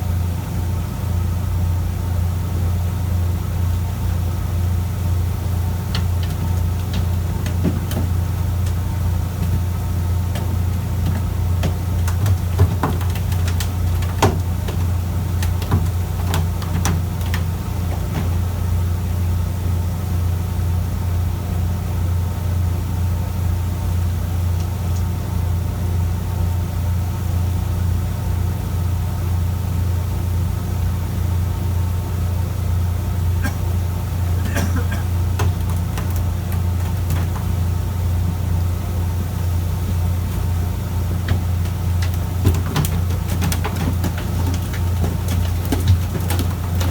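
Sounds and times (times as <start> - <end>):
sharp clicks and knocks: 5.8 - 18.6, 34.5 - 37.7, 41.0 - 46.9.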